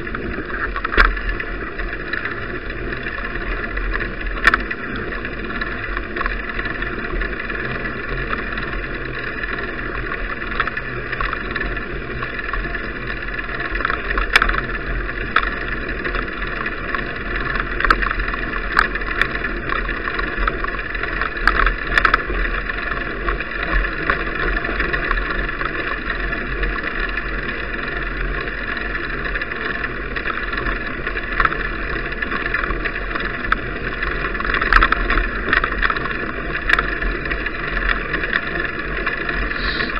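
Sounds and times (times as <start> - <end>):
clicks and knocks from bumps: 0.0 - 7.4, 8.2 - 26.1, 29.3 - 39.9
road noise: 38.6 - 39.9.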